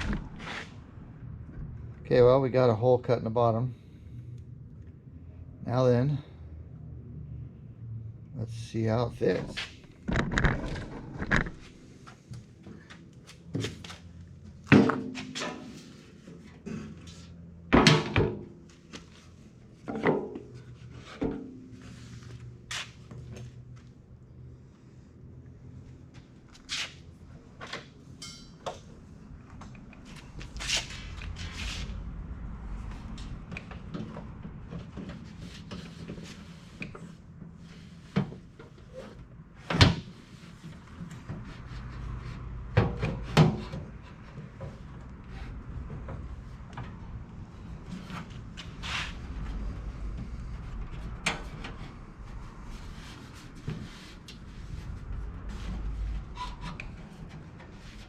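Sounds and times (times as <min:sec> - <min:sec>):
knocks and scrapes of heater: 0:09.3 - 0:23.5, 0:29.5 - 0:58.0.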